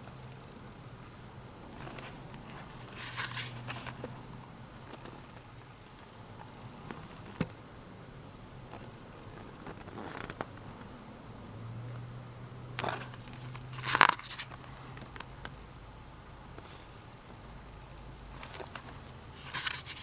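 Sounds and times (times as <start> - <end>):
paper rustling: 1.8 - 4.1, 12.8 - 14.6, 18.5 - 20.0.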